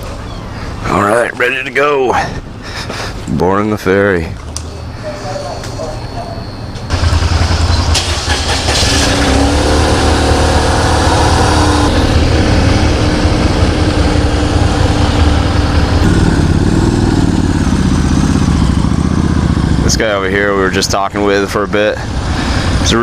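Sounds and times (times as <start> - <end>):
motorcycle engine running: 6.9 - 23.0.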